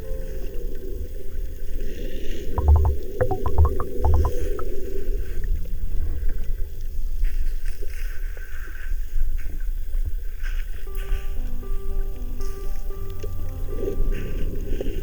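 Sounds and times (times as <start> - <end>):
underwater clicks and pulses: 2.6 - 4.7.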